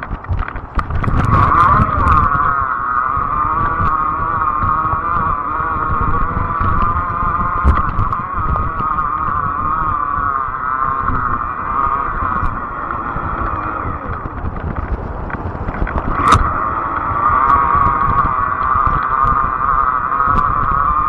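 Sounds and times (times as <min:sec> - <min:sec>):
electric bike motor whine: 0:00.0 - 0:21.0
low rumble: 0:00.0 - 0:21.0
sharp click: 0:14.1 - 0:18.2.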